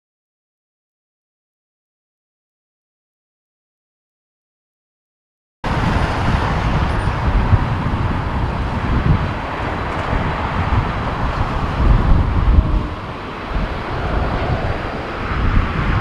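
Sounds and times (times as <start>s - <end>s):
wind buffeting microphone: 5.6s - 16.0s
wind rushing: 5.6s - 16.0s.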